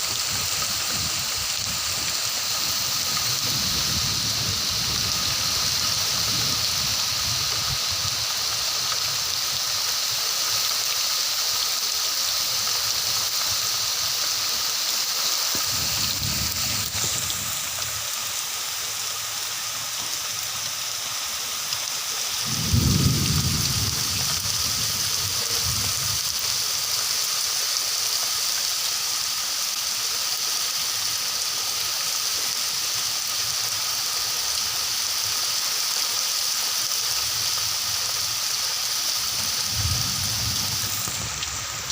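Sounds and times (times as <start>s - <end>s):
steady rain falling: 0.0s - 41.9s
low rumbles: 39.7s - 41.9s.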